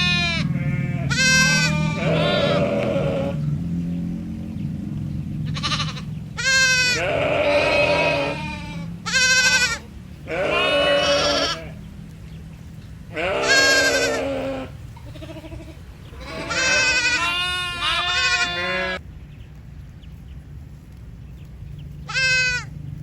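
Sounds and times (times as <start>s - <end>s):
sheep bleating: 0.0s - 3.7s, 5.4s - 11.8s, 13.1s - 19.0s, 22.1s - 22.7s.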